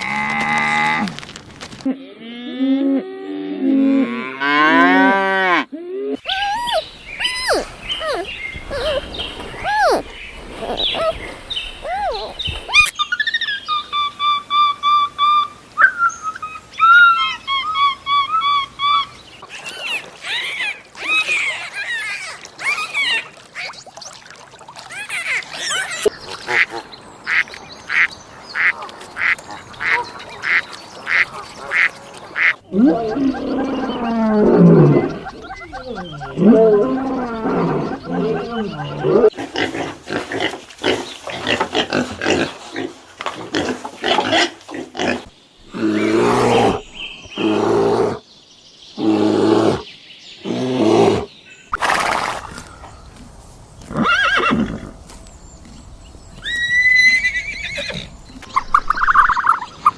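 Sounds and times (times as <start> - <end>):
wavering drawn-out animal calls: 11.8 - 23.9, 24.8 - 26.6, 28.6 - 39.4
longer animal calls: 28.6 - 39.3.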